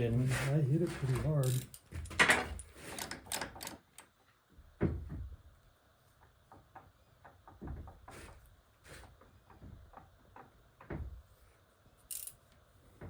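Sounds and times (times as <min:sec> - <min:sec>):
metal parts knocking and clinking: 0:01.1 - 0:04.2, 0:12.0 - 0:12.6.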